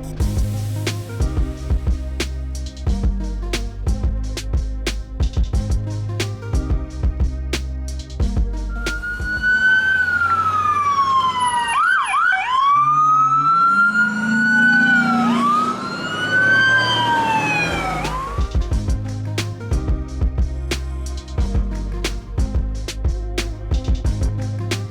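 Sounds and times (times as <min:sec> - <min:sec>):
background music with a beat: 0:00.0 - 0:09.6, 0:17.8 - 0:24.9
police siren wailing: 0:08.8 - 0:18.5.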